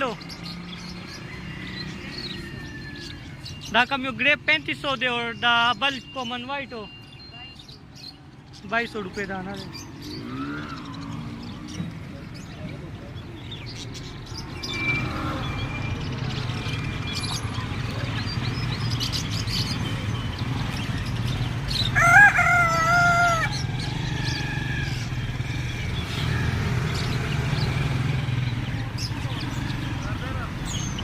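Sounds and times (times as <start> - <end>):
small birds chirping: 0.0 - 31.0
rooster crowing: 1.2 - 3.4, 21.8 - 25.1.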